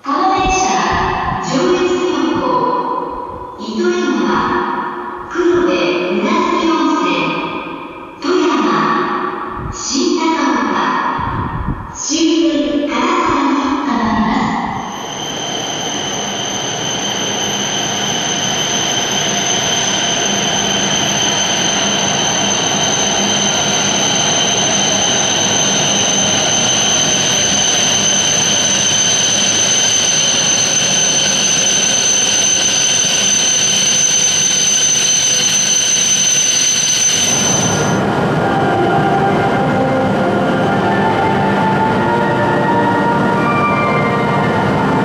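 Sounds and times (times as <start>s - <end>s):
train rumbling rush: 0.0s - 9.9s, 10.9s - 45.0s
high-pitched train whine: 0.0s - 45.0s.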